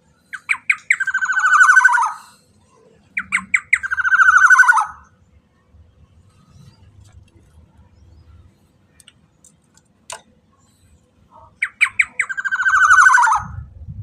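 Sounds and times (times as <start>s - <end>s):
oriole calling: 0.3s - 2.3s, 3.2s - 5.1s, 11.3s - 13.7s.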